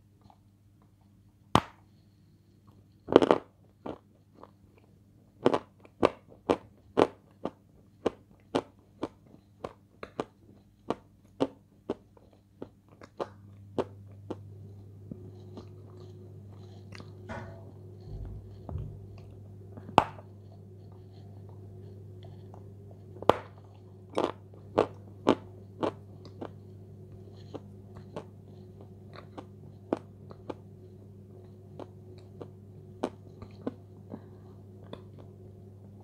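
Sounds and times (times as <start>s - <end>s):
clay crunching when chewed: 3.1s - 17.2s, 20.1s - 30.6s.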